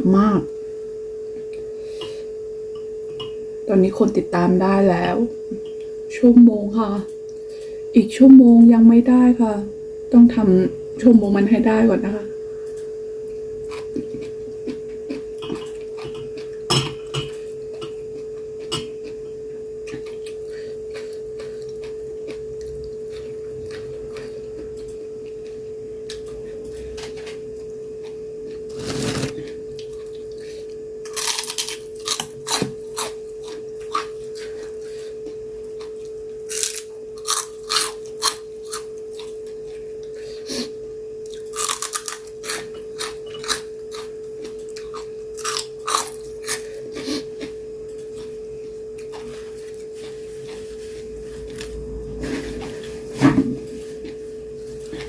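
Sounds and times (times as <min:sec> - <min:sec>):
steady humming tone: 0:00.0 - 0:55.0.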